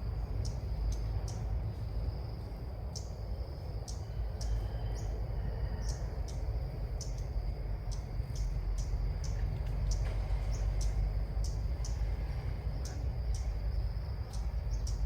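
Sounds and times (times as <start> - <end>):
bird chirping: 14.3 - 15.0.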